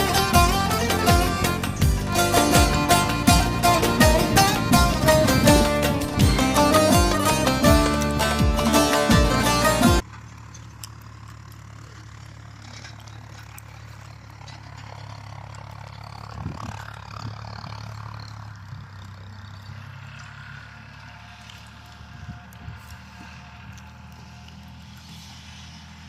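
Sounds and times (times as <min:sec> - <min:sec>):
engine humming: 0:00.0 - 0:26.0.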